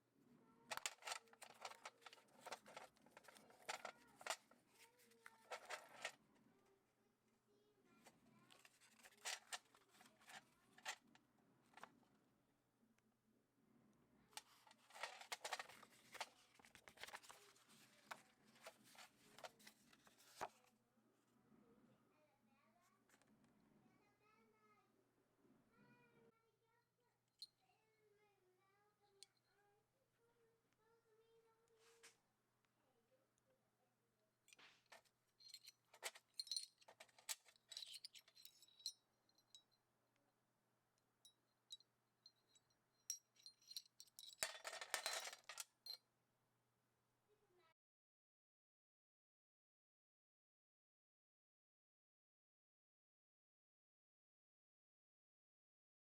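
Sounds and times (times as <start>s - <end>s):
small metal pieces jingling: 35.4s - 38.9s, 43.1s - 46.0s.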